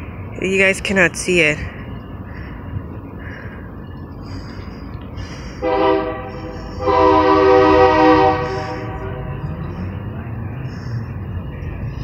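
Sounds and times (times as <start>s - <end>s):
locomotive air horn blasts: 5.6s - 9.5s.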